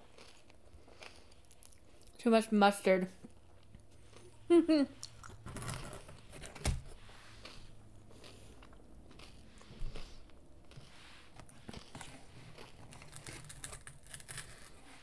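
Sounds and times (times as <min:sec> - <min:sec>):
close-miked chewing: 0:00.0 - 0:02.2, 0:07.3 - 0:15.0.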